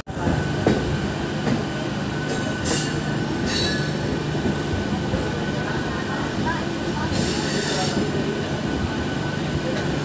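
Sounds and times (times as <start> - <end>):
train rumble and hum: 0.0 - 10.0.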